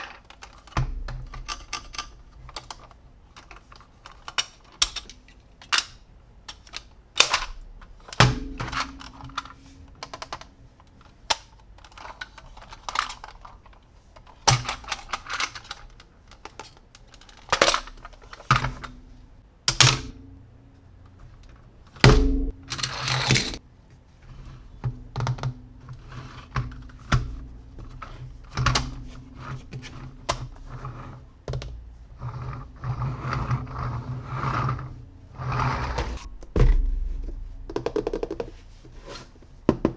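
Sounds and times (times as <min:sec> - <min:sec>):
plastic toys clicking and knocking: 0:00.0 - 0:18.9.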